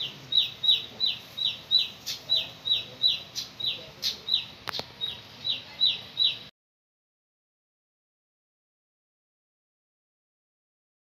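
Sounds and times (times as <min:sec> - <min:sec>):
small bird high calls: 0:00.0 - 0:06.5.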